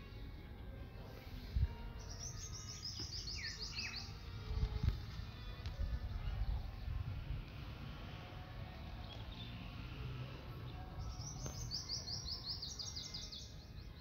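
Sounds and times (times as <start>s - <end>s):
songbird singing high notes: 2.0s - 4.2s.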